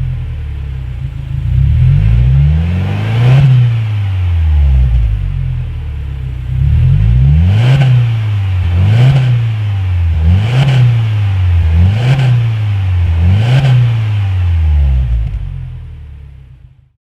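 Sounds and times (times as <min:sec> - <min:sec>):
car engine revving: 0:00.0 - 0:16.8.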